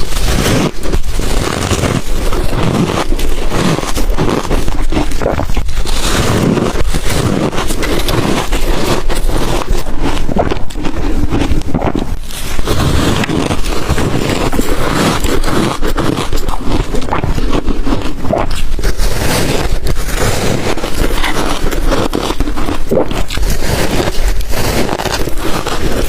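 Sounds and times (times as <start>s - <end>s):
ice being bitten and chewed: 0.0s - 26.0s.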